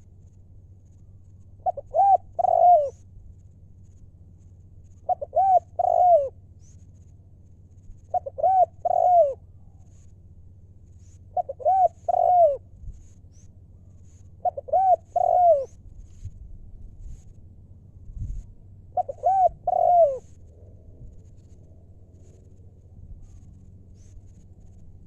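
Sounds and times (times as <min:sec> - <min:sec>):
dove cooing: 0:01.6 - 0:03.1, 0:05.0 - 0:06.4, 0:08.1 - 0:09.5, 0:11.2 - 0:12.7, 0:14.4 - 0:15.8, 0:18.9 - 0:20.5.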